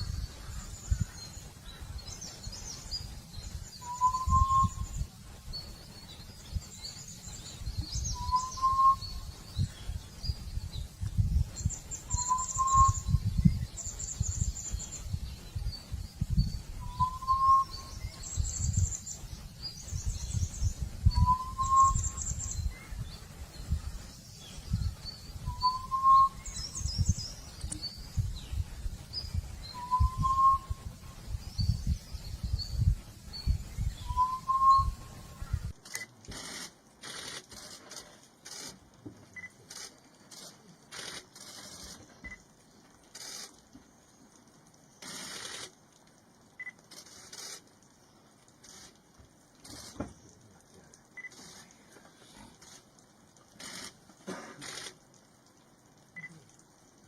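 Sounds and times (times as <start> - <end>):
birds chirping: 0.0 - 54.0
quail rising whistle call: 3.8 - 4.9, 8.2 - 9.2, 12.1 - 13.1, 29.8 - 30.8, 34.0 - 35.2
scratchy rasping bursts: 36.3 - 38.9, 52.5 - 55.0.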